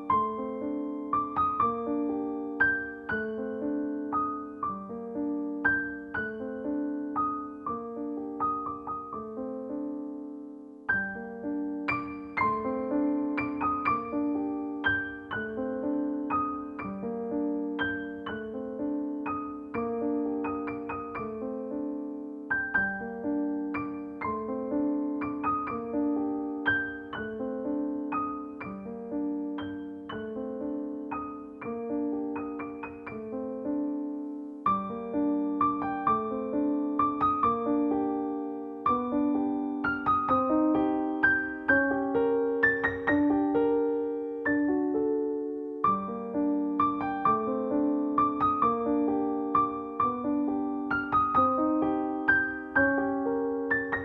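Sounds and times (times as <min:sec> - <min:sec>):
solo piano piece: 0:00.0 - 0:54.0.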